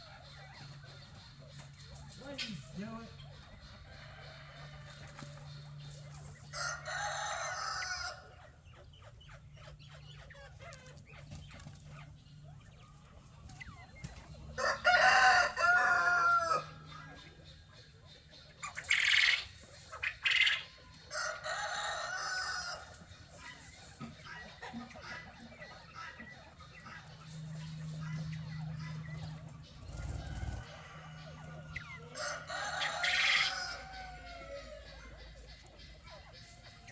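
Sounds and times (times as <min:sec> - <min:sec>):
chickens calling: 0:00.0 - 0:36.9
rooster crowing: 0:06.5 - 0:08.3, 0:14.6 - 0:17.0, 0:21.1 - 0:23.0, 0:29.9 - 0:35.0.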